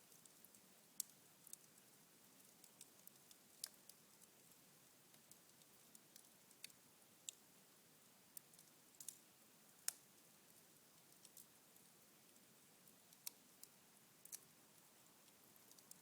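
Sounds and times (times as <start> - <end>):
embers crackling in fireplace: 0.0 - 7.5, 8.3 - 16.0.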